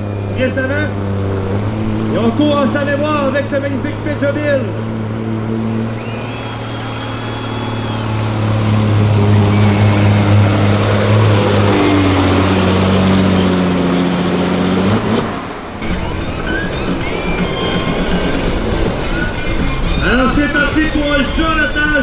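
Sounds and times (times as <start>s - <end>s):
truck diesel engine under load: 0.0s - 22.0s
high whistle: 5.6s - 20.2s.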